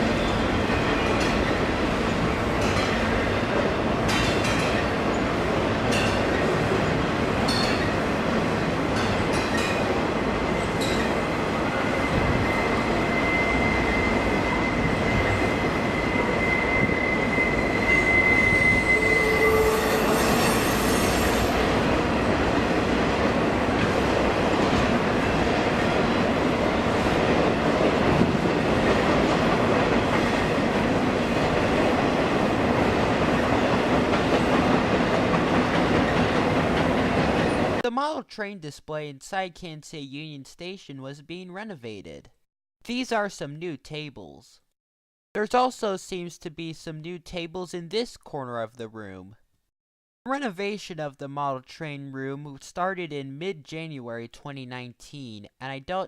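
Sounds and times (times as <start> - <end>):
train rumbling past: 0.0 - 37.8
high wheel squeal: 11.6 - 21.7.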